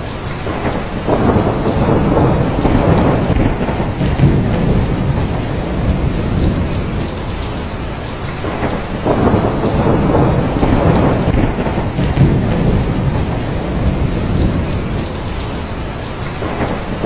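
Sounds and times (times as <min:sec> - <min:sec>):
heavy rain: 0:00.0 - 0:17.0
rolling thunder: 0:00.0 - 0:17.0.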